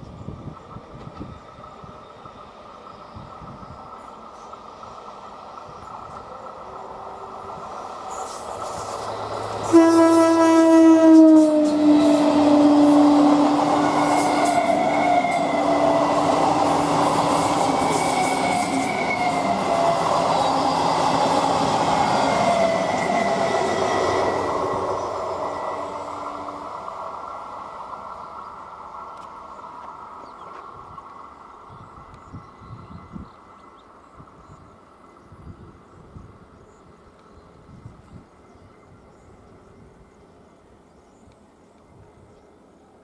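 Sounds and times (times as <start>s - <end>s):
train coaches rumbling and clattering: 0.0s - 40.8s
train horn: 9.5s - 16.5s.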